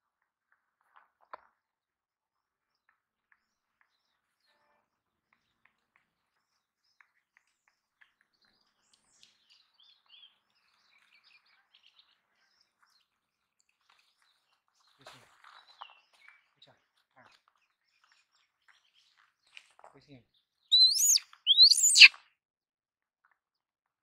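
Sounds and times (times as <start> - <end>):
faint bird chirping: 20.7 - 22.1.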